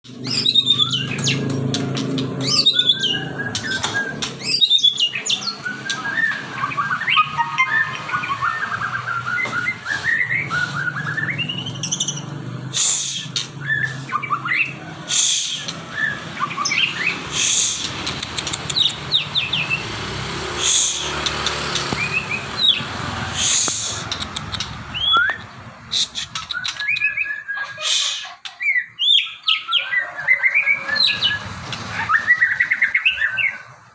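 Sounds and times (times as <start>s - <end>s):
songbird singing: 0.1s - 33.9s
short clicks: 17.6s - 19.1s, 23.5s - 27.0s.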